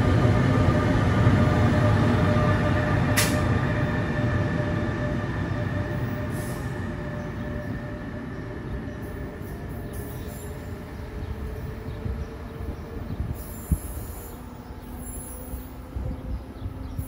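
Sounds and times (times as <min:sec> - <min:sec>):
electric locomotive whine: 0:00.0 - 0:17.0
rumble of train wheels: 0:00.0 - 0:17.0
sharp click: 0:03.2 - 0:03.4.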